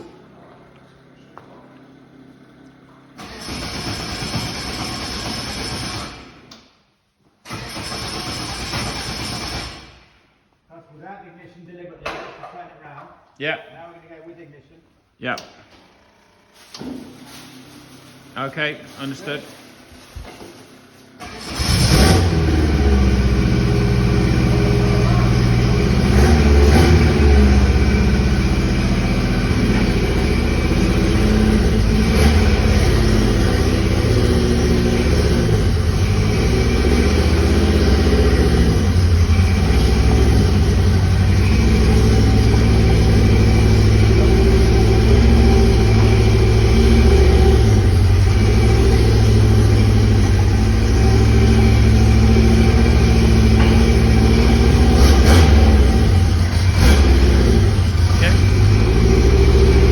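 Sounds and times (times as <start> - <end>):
car engine idling and revving: 1.9 - 6.6, 7.5 - 10.0, 19.5 - 59.9.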